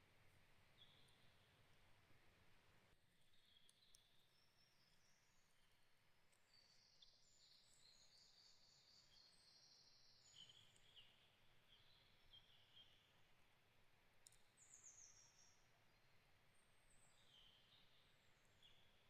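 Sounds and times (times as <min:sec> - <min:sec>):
bird chirps: 0:06.4 - 0:13.1.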